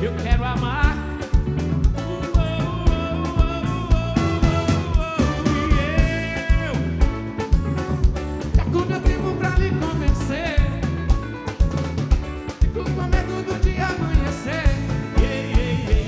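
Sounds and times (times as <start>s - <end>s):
person singing: 0.0s - 11.2s, 12.7s - 16.0s
live band music: 0.0s - 16.0s
steady drum beat: 0.0s - 16.0s.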